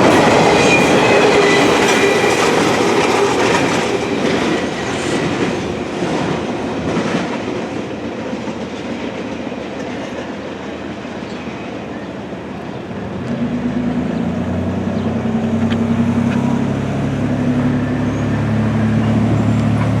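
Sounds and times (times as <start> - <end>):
freight train wheels rolling: 0.0 - 14.1.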